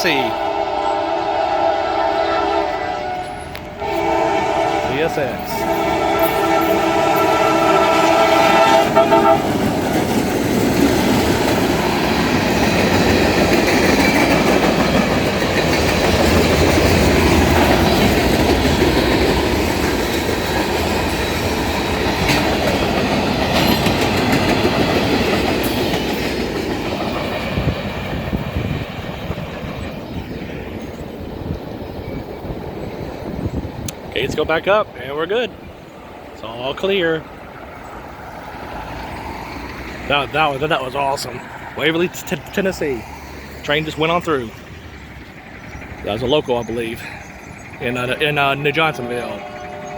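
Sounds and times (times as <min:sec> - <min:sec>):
train air horn: 0:00.0 - 0:09.7, 0:48.6 - 0:49.9
train wheels clattering on rails: 0:05.0 - 0:34.2, 0:36.8 - 0:49.9.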